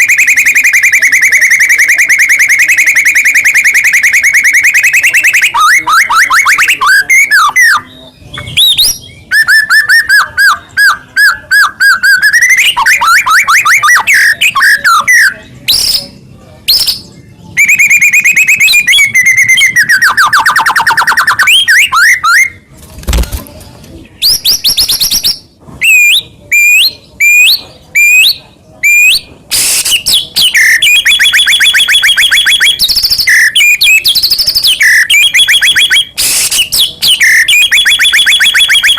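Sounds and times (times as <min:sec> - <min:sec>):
songbird singing loudly: 0:24.2 - 0:38.9.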